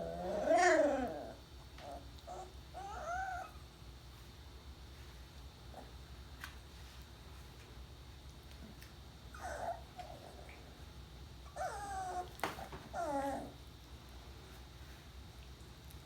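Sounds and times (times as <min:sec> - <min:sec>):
puppies whining: 0:00.0 - 0:03.7, 0:09.3 - 0:10.6, 0:11.4 - 0:13.6.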